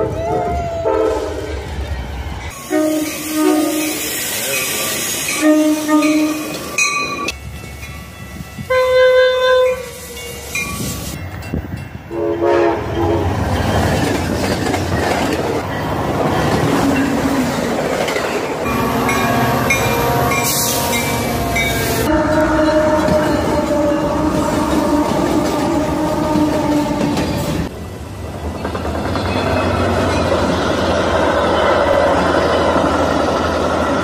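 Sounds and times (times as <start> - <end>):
train rumble: 0.0 - 34.0
train horn blasts: 0.8 - 1.5, 2.5 - 4.1, 5.3 - 6.6, 8.6 - 10.2, 12.1 - 13.4, 18.6 - 27.7
wheels clacking on rails: 9.6 - 34.0.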